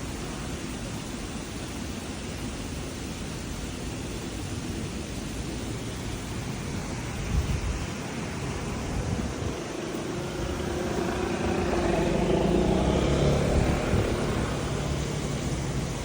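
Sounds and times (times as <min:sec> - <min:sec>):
street noise hum: 0:00.0 - 0:16.0
car passing by: 0:06.4 - 0:16.0.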